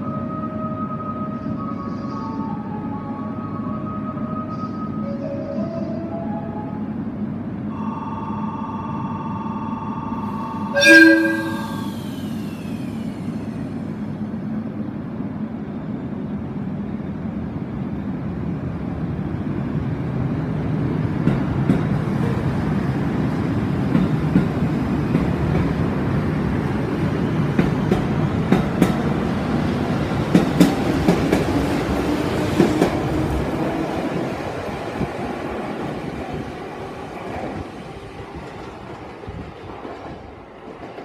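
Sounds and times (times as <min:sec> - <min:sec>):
electric train running: 0:10.3 - 0:14.8.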